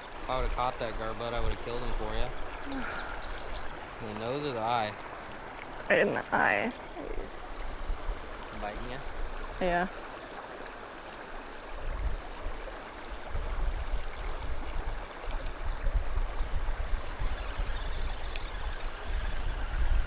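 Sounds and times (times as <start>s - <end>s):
river water rushing: 0.0s - 19.8s.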